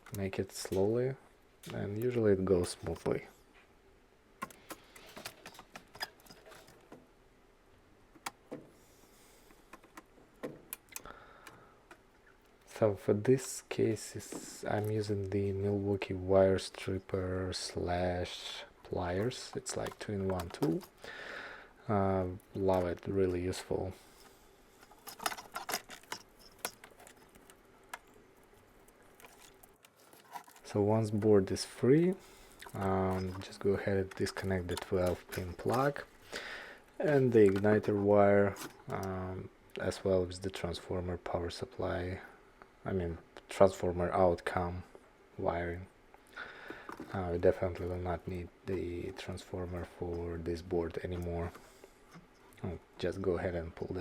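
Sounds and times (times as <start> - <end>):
plastic clicks and scratches: 4.4 - 7.0, 19.2 - 21.0, 24.8 - 31.7, 32.5 - 36.2, 37.0 - 39.1.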